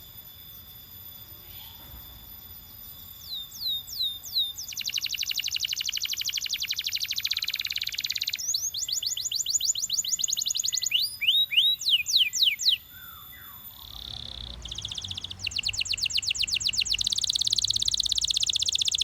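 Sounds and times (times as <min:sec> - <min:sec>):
canary singing trills: 0:00.0 - 0:19.0.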